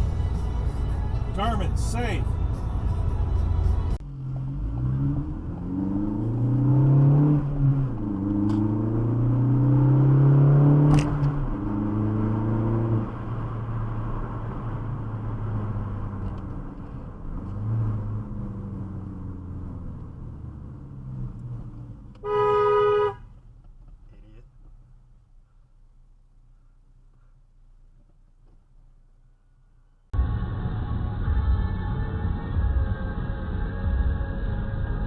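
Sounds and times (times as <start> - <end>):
car engine accelerating: 0.0 - 25.3
short car horn blast: 22.2 - 23.3.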